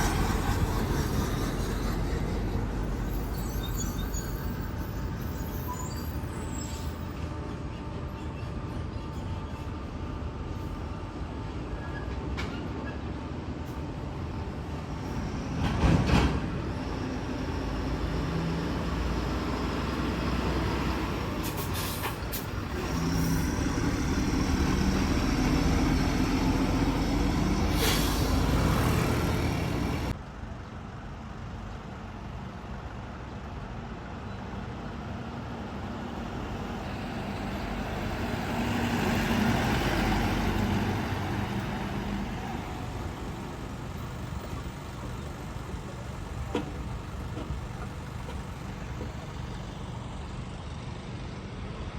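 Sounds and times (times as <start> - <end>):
diesel trucks and buses passing: 0.0 - 51.9
air brake hisses: 21.4 - 23.6, 27.6 - 28.8.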